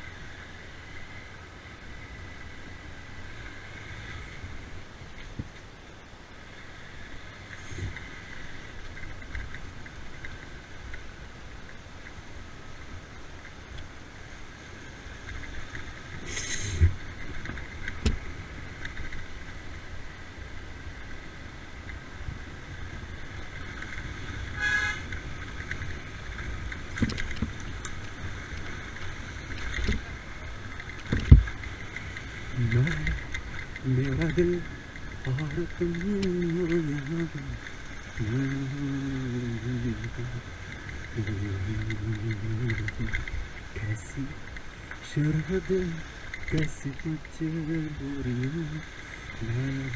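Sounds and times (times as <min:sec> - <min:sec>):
wind and tyre noise: 0:00.0 - 0:49.9
horn toot: 0:24.5 - 0:25.1.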